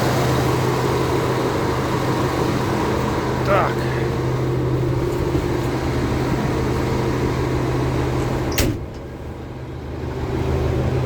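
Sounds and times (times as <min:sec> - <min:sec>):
diesel engine idling: 0:00.0 - 0:11.0
cab door slamming: 0:08.5 - 0:09.2.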